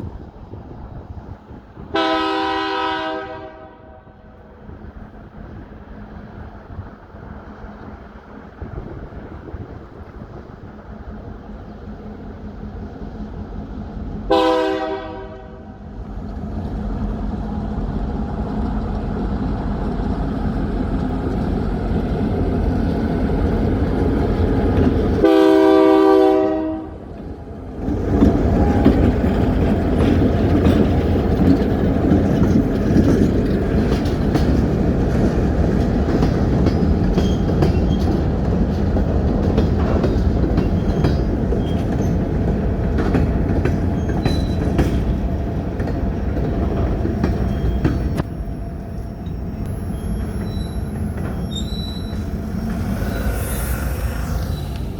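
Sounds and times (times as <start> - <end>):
train rumbling past: 0.0 - 54.9
locomotive air horn blasts: 1.9 - 4.2, 14.3 - 15.8, 25.2 - 27.0
wheels clicking over rail joints: 27.0 - 48.4, 49.1 - 54.9.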